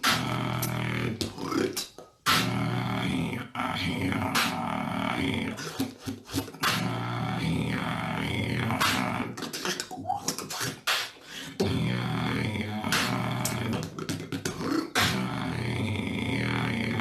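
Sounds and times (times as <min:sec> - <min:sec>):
beatboxing: 0:00.0 - 0:17.0.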